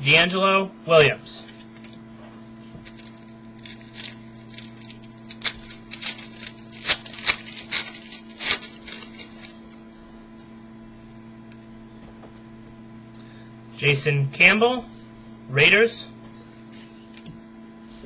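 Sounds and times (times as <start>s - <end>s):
packaging rustling: 1.5s - 9.8s.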